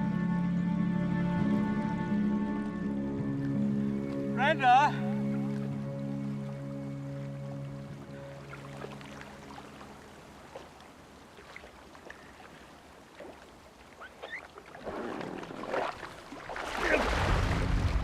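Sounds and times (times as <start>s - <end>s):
water splashing from swimming: 7.6s - 18.0s.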